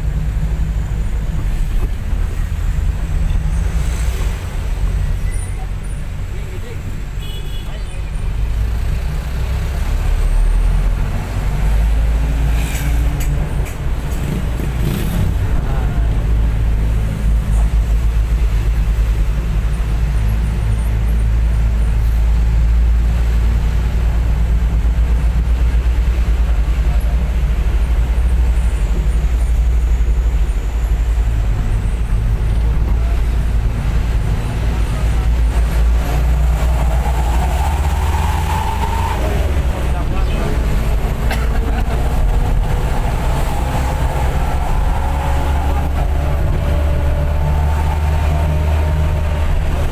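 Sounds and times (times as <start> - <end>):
bus engine and road rumble: 0.0 - 49.9.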